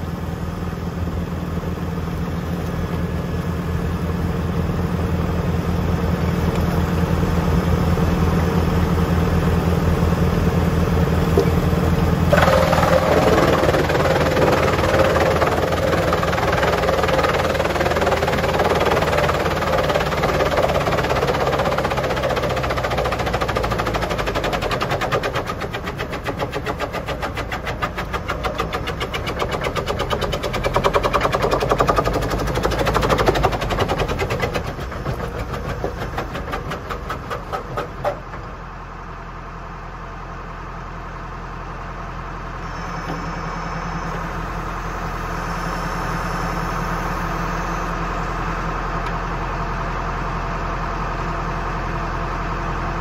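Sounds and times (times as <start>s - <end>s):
wood chipper clatter: 0.0s - 41.3s
engine and drive hum: 0.0s - 53.0s.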